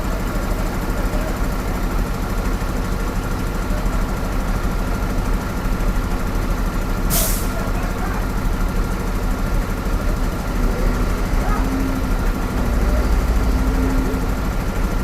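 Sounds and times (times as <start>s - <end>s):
heavy diesel engine running: 0.0s - 15.0s
short sharp hiss: 7.1s - 7.5s.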